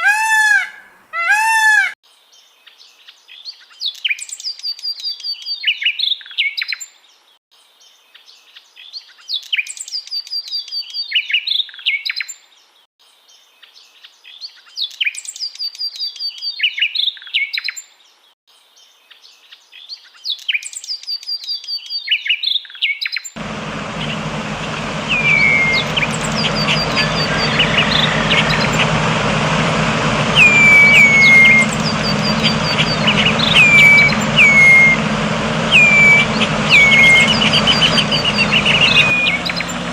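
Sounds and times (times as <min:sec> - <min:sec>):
background noise and hum: 0:23.4 - 0:39.9
songbird singing: 0:23.4 - 0:39.9
bird falling whistled calls: 0:23.6 - 0:39.9.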